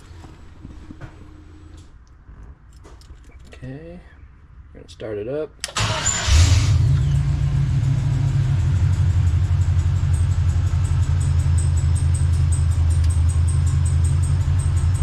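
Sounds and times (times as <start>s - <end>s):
engine idling: 5.6s - 15.0s.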